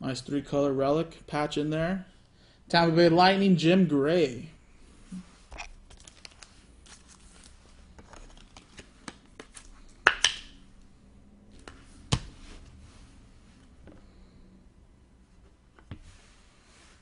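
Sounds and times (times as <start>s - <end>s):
cards clicking and rustling: 5.9s - 10.5s.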